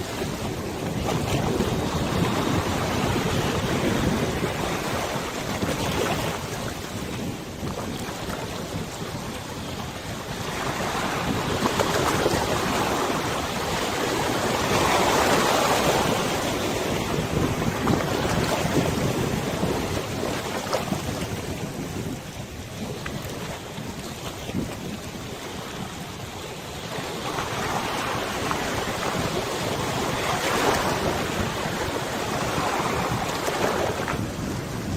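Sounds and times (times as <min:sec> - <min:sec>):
river waves splashing: 0:00.0 - 0:34.9
wind buffeting microphone: 0:00.0 - 0:34.9.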